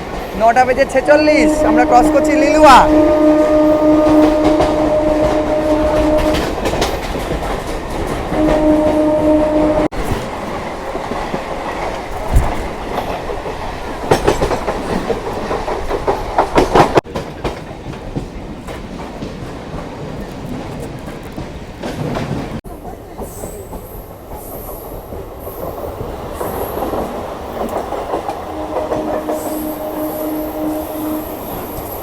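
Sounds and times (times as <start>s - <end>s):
train horn blast: 0.9s - 6.9s, 8.2s - 10.3s, 28.4s - 31.8s
train wheels clattering over rail joints: 3.9s - 8.7s, 9.9s - 25.3s.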